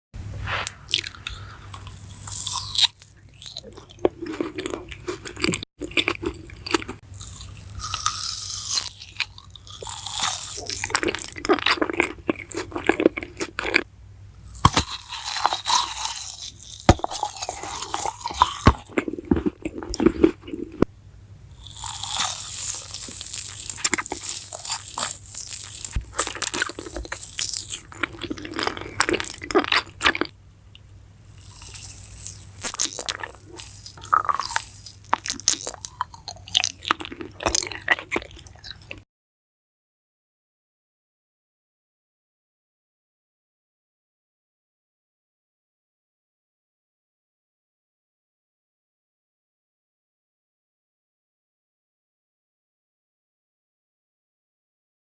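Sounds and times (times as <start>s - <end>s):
person chewing crunchy food: 0.6s - 20.9s, 21.6s - 30.4s, 31.2s - 39.0s.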